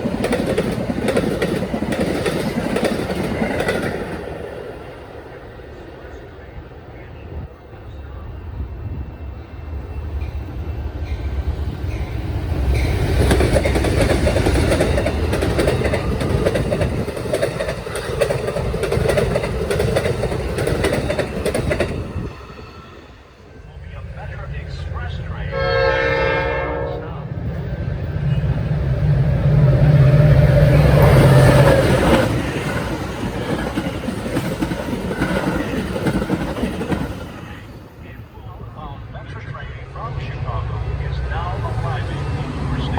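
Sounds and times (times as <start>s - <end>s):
wheels clacking over rail joints: 0.0s - 4.5s, 12.0s - 22.3s, 30.4s - 37.8s
train passing rumble: 0.0s - 42.9s.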